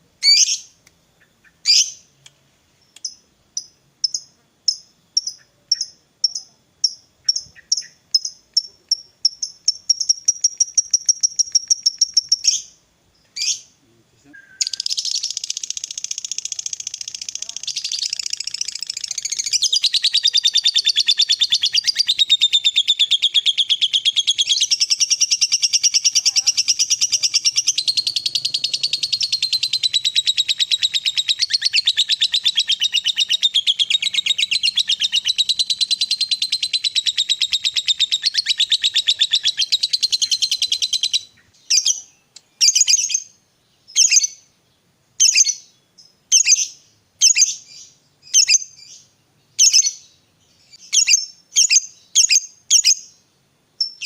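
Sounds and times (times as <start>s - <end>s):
lovebird fast chatter: 14.6s - 41.2s.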